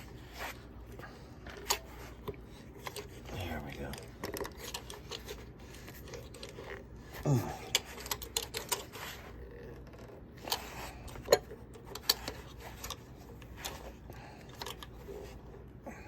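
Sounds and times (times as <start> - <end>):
metal tools clicking and scraping: 7.6 - 15.4.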